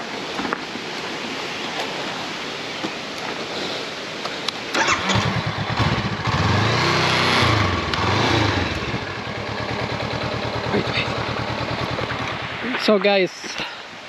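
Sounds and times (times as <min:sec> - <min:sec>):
motorcycle engine starting and revving: 0:04.7 - 0:12.7.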